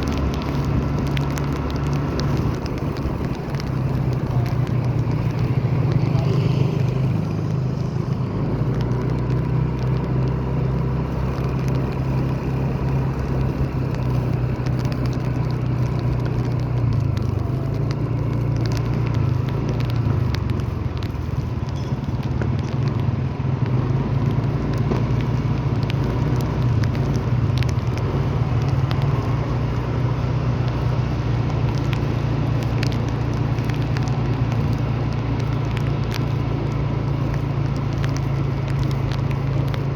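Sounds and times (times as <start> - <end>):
light ticks and crackles: 0.0 - 39.9
vehicle engine rumbling: 0.0 - 39.9.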